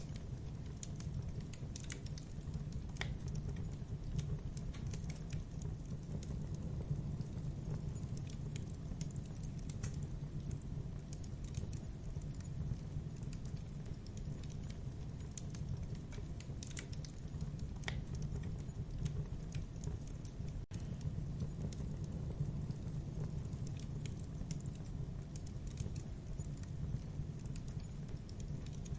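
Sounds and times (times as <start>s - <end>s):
low rumble of flames: 0.0s - 28.9s
wood crackling and popping: 0.0s - 28.9s.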